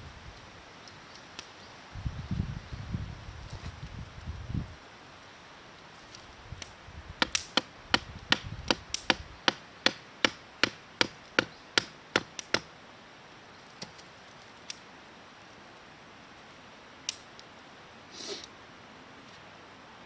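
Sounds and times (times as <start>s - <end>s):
blade chopping wood: 7.2s - 12.7s.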